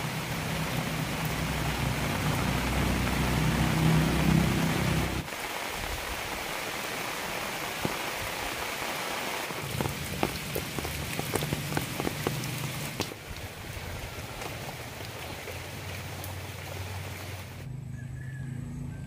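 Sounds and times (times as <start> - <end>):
rain falling on leaves: 0.0 - 17.6
raindrops plinking into puddle: 7.7 - 8.7, 9.5 - 17.2.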